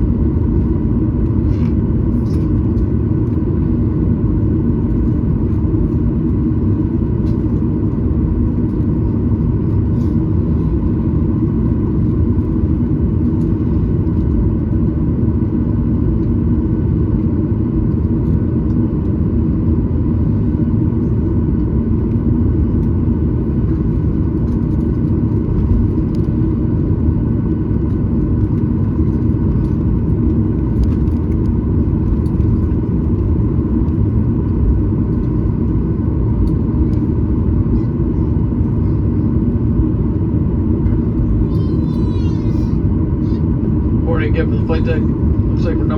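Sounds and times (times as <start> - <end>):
jet engine rumble in cabin: 0.0 - 45.9
faint steady whine: 22.8 - 45.9.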